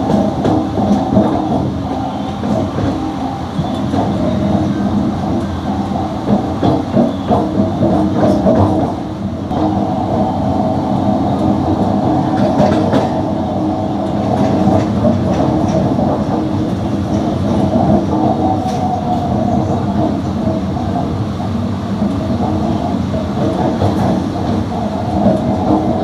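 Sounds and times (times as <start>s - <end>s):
train wheels rumbling on rail: 0.0s - 26.0s
wheels clacking over rail joints: 0.0s - 26.0s.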